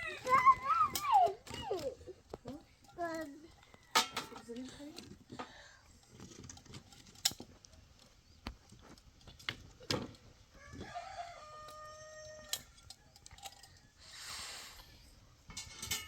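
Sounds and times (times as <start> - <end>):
rooster crowing: 10.5 - 14.2
short hiss: 14.0 - 14.9
sharp knocks and clinks: 15.5 - 16.0.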